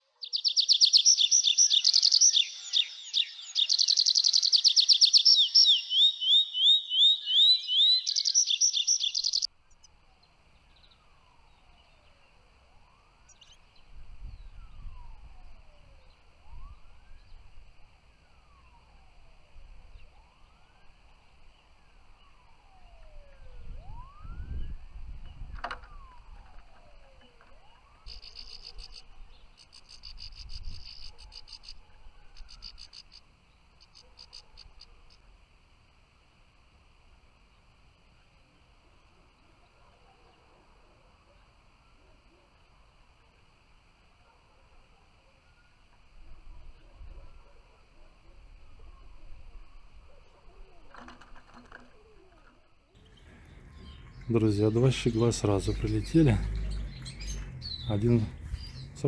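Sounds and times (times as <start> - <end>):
goldfinch twittering song: 0.2 - 12.2, 53.0 - 59.0
low rumbles: 53.0 - 59.0
pulsing high chirp: 53.0 - 59.0.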